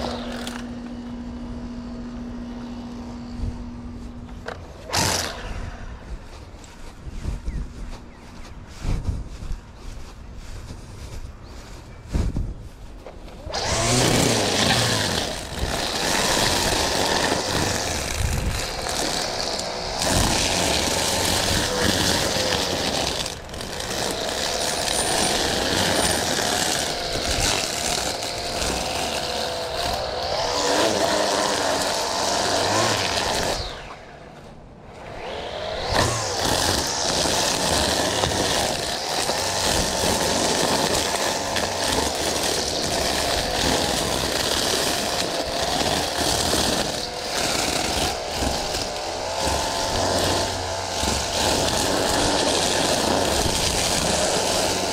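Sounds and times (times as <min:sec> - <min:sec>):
small petrol engine running: 0:13.4 - 0:33.9, 0:35.2 - 0:54.9.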